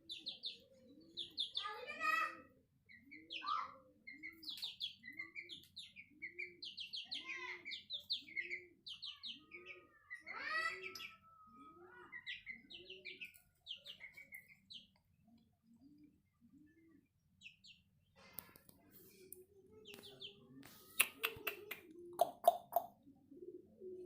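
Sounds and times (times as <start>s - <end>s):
chicks peeping: 0.0s - 2.2s, 2.9s - 23.6s.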